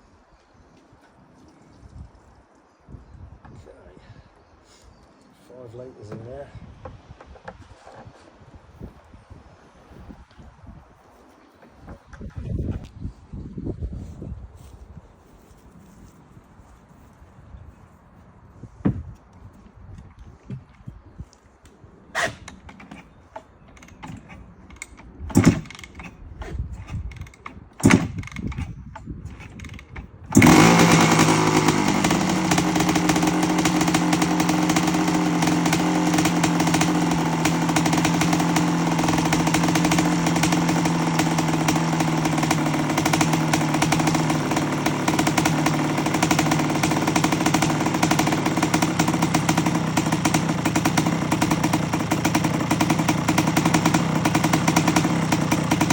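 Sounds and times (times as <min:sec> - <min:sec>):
two-stroke engine idling: 0:22.8 - 0:26.2, 0:26.8 - 0:55.9.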